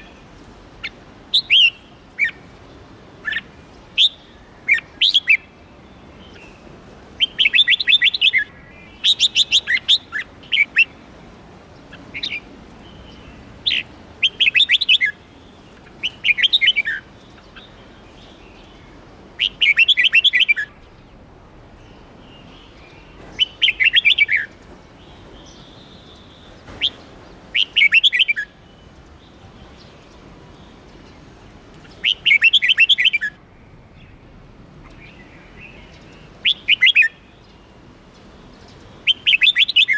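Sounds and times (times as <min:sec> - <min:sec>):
bulbul singing: 0:31.8 - 0:34.2, 0:38.6 - 0:39.9.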